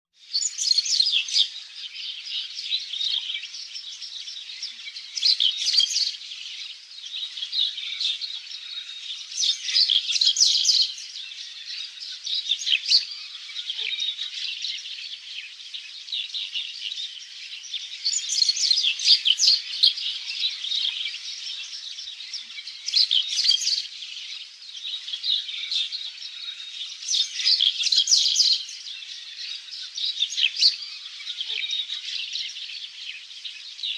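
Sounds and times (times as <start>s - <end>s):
birds chirping and singing: 0.2s - 33.9s.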